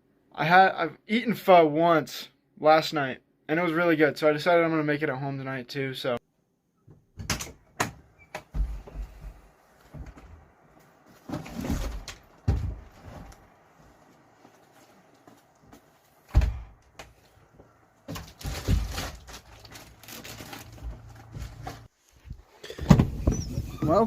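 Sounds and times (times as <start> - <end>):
knocks and thumps: 6.9 - 10.4, 11.2 - 13.4, 20.7 - 24.0
tarp rustling: 17.2 - 22.1.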